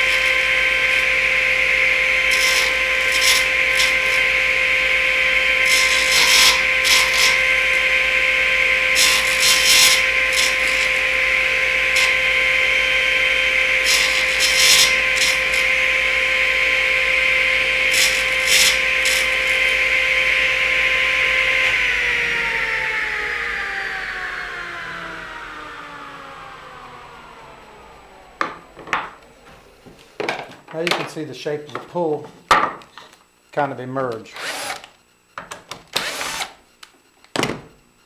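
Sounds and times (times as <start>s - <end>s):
saw blade cutting wood: 0.0s - 21.7s, 34.3s - 34.9s
saw blade winding down: 0.0s - 29.4s, 34.4s - 34.9s, 36.0s - 36.6s
table saw whine: 0.0s - 33.1s.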